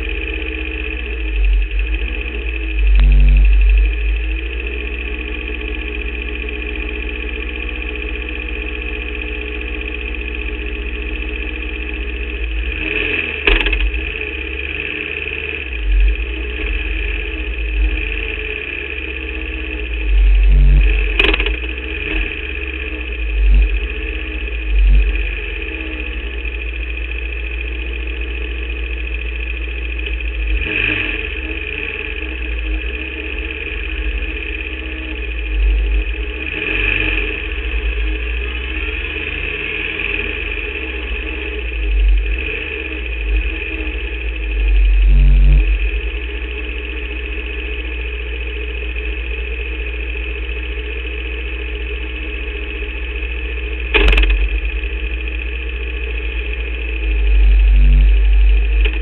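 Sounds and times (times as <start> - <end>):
racing car engine running: 0.0 - 59.0
sharp clicks: 13.4 - 14.0, 21.1 - 21.7, 53.9 - 54.7.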